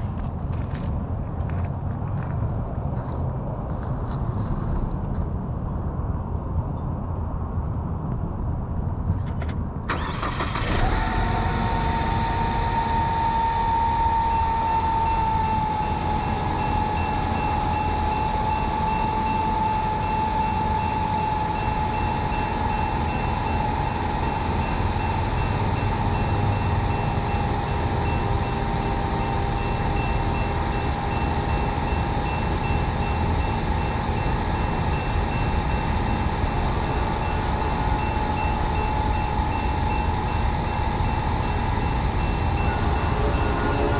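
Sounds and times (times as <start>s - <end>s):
high-pitched wheel squeal: 9.9s - 43.9s
train rumbling past: 9.9s - 43.9s.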